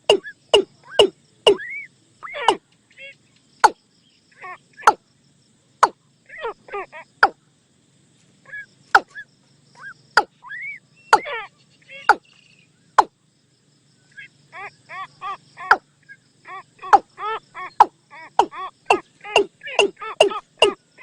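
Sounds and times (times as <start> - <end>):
bird calling hollow notes: 0.0 - 2.6, 4.8 - 5.0, 8.5 - 9.2, 9.8 - 12.3, 16.5 - 20.8.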